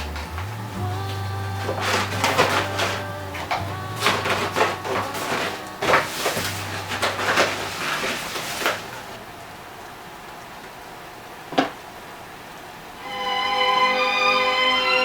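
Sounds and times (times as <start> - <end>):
objects knocking and clattering: 0.0 - 9.2
steady soft hiss: 0.0 - 15.0.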